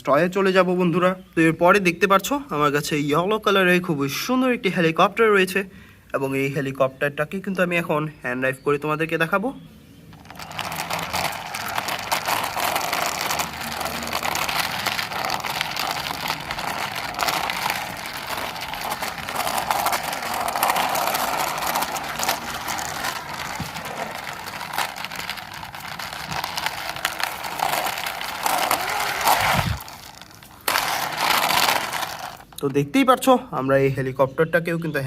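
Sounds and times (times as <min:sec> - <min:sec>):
toy rolling and grinding: 0:10.1 - 0:32.7.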